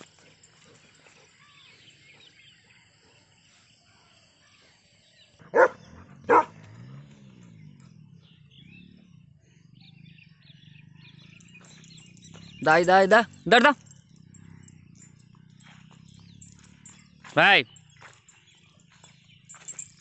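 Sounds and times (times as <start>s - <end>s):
dog barking: 5.4s - 7.0s.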